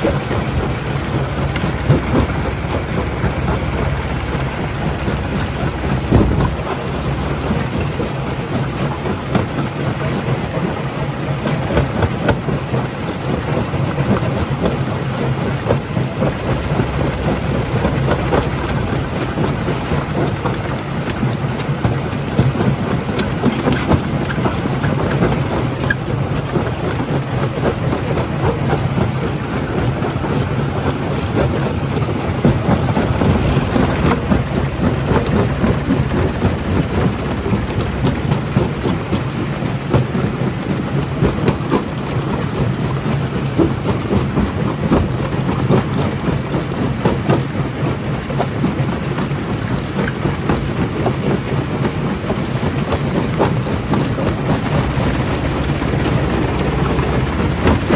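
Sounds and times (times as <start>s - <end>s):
jaw crusher machine hum: 0.0s - 9.6s, 15.4s - 46.3s, 52.3s - 57.9s.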